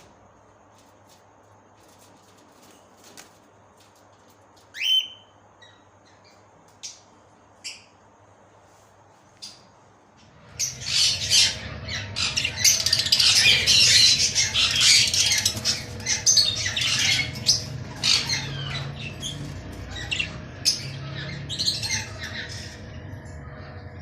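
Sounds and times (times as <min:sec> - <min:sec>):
budgerigars chattering and squawking: 0:10.6 - 0:23.0.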